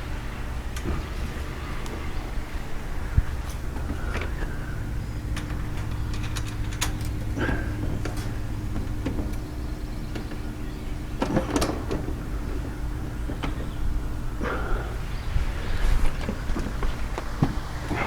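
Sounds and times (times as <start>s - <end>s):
steady low hum: 0.0s - 18.0s
knocks and clicks of parts: 5.3s - 10.5s, 11.1s - 14.7s.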